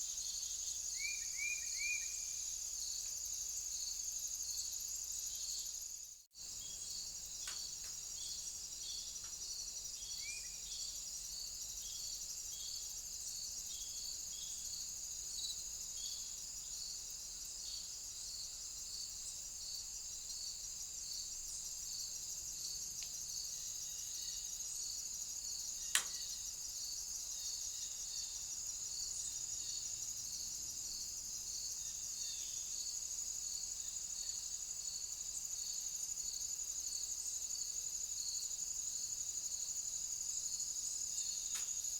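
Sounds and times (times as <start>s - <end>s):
night insects trilling: 0.0s - 41.9s
sharp click: 25.9s - 26.2s, 41.5s - 41.8s.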